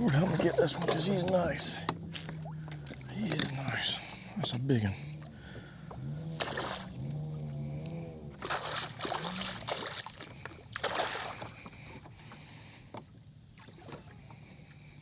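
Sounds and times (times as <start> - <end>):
water splashing at kayak: 0.0 - 15.0.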